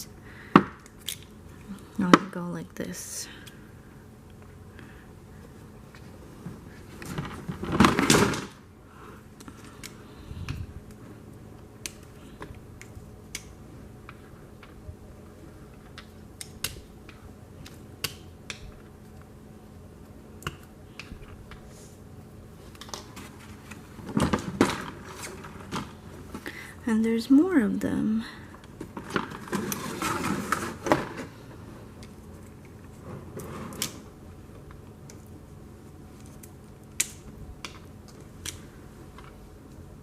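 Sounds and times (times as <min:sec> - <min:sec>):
rustling handling noise: 0:05.3 - 0:08.6, 0:21.3 - 0:26.6, 0:28.5 - 0:36.9.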